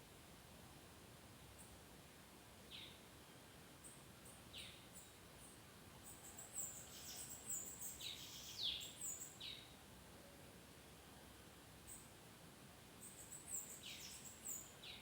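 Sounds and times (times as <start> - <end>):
bird singing thin chirps: 6.1 - 9.7, 13.0 - 15.0.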